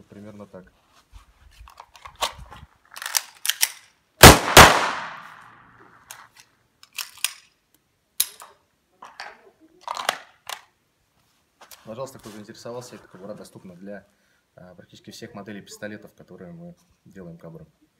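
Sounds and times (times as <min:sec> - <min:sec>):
holster clicking and snapping: 0:01.7 - 0:03.8.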